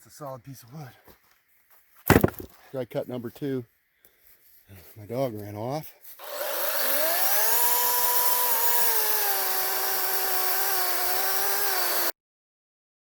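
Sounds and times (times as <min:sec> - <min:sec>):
battery chainsaw cutting log: 0:02.1 - 0:02.5, 0:06.2 - 0:12.2.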